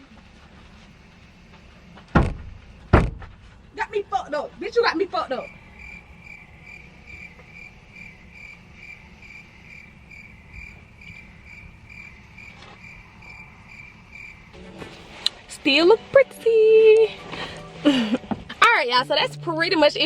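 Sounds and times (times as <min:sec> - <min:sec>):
cricket chirping: 0:04.8 - 0:14.6.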